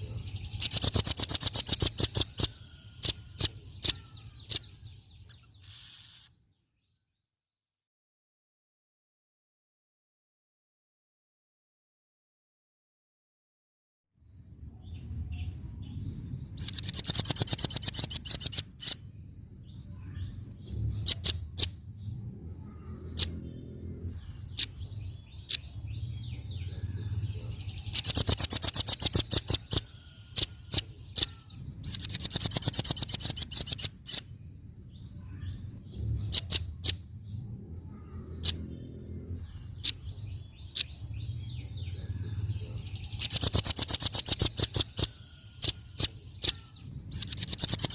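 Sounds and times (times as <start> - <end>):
bird rapid high sharp calls: 0.2 - 6.4, 16.6 - 21.9, 22.6 - 37.2, 37.9 - 47.9
bird sharp chips: 0.5 - 6.3, 16.6 - 19.0, 28.0 - 34.3, 43.2 - 47.9
low rumble: 14.3 - 16.9, 19.0 - 28.2, 33.9 - 43.3.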